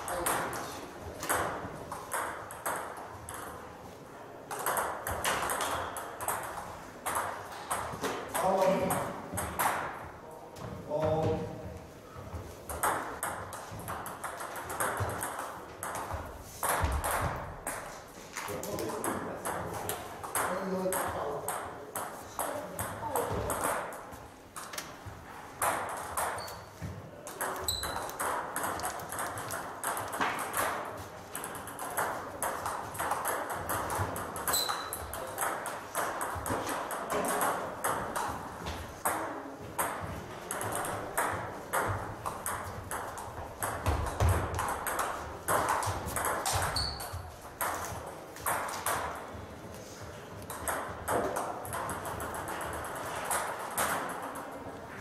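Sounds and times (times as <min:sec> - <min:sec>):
table tennis balls clicking: 0:00.0 - 0:10.1, 0:12.6 - 0:49.6, 0:50.3 - 0:55.0.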